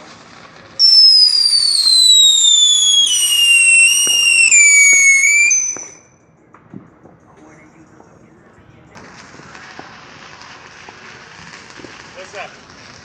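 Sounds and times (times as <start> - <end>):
whistling firework: 0.0 - 6.2, 9.0 - 13.0
faint firework pops: 0.0 - 8.2, 8.9 - 13.0.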